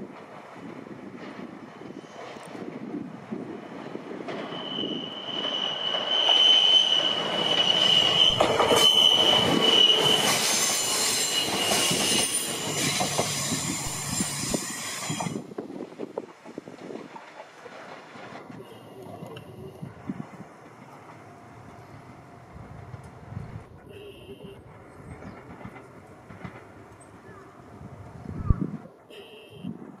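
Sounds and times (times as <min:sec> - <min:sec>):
train wheels squealing: 0:01.8 - 0:02.5, 0:04.2 - 0:15.4.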